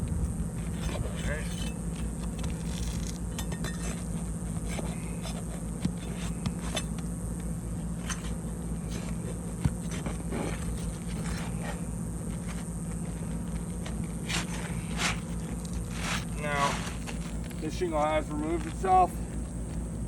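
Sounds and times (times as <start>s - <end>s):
steady low rumble: 0.0s - 5.2s
scraping on roof shingle: 8.0s - 17.6s.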